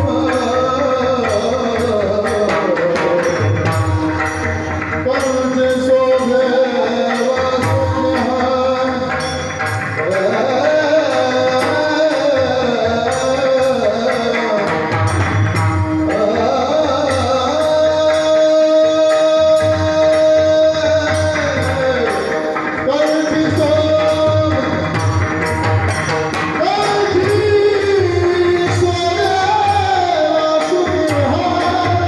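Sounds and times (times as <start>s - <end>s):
drum and percussion: 0.0s - 32.0s
person singing devotional song: 0.0s - 32.0s.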